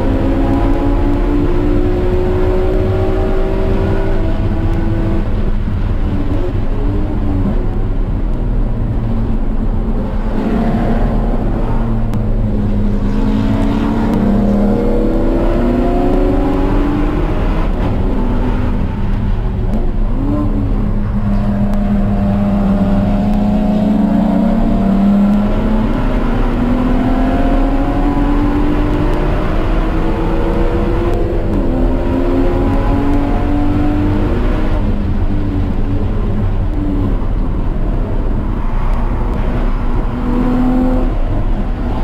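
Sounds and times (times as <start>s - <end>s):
car engine accelerating: 0.0s - 42.0s
road and wind noise: 0.0s - 42.0s.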